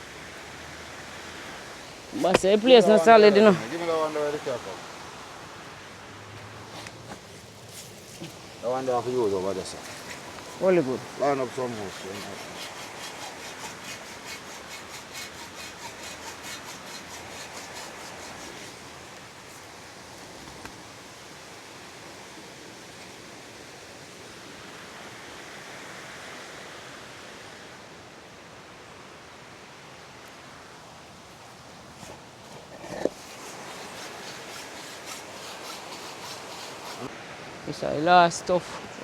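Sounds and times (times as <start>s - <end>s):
steady rushing hiss: 0.0s - 39.0s
rhythmic scraping strokes: 7.7s - 18.8s, 32.0s - 37.1s.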